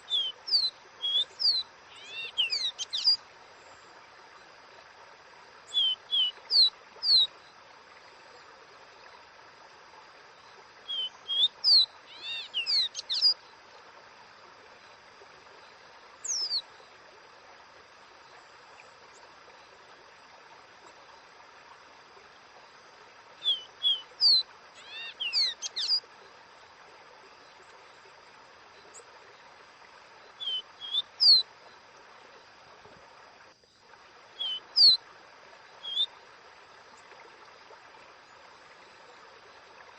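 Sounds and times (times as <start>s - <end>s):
bird whistling song: 0.0s - 3.2s, 5.7s - 7.3s, 10.9s - 13.4s, 16.2s - 16.6s, 23.4s - 26.0s, 30.4s - 31.4s, 34.4s - 35.0s, 35.8s - 36.1s
faint hiss: 0.0s - 39.9s.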